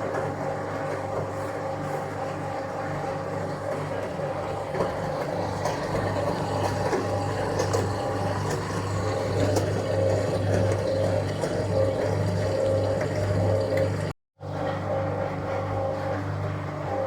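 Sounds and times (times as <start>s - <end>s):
washing machine hum pulsing: 0.0s - 17.0s
water noise: 7.0s - 14.1s.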